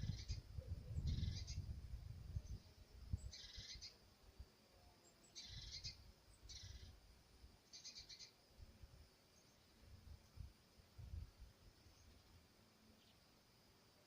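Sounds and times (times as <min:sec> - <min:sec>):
faint harsh bird calls: 0:00.0 - 0:01.7, 0:03.2 - 0:04.0, 0:05.0 - 0:07.0, 0:07.6 - 0:08.4.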